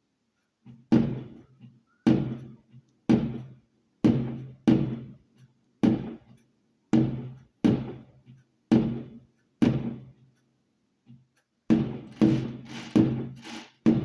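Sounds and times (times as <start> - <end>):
fireworks exploding: 11.9 - 13.8.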